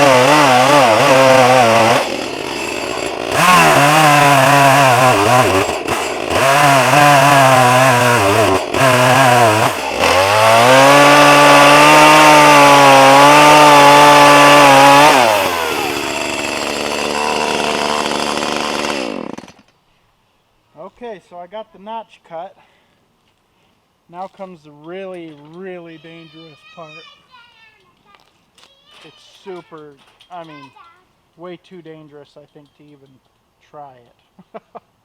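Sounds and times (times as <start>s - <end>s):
chainsaw cutting tree trunk: 0.0s - 19.7s.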